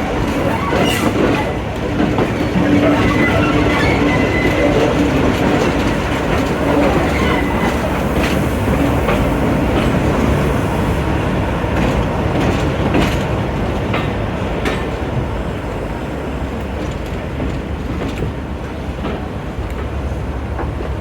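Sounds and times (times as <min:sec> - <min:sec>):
train rumbling along track: 0:00.0 - 0:21.0
wheels clicking over rail joints: 0:00.2 - 0:10.4.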